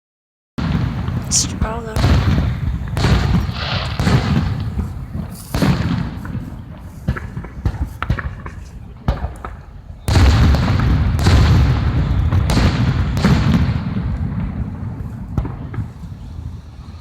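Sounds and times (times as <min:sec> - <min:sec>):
fireworks crackling: 0:00.6 - 0:09.5
fireworks bangs and booms: 0:00.6 - 0:16.6.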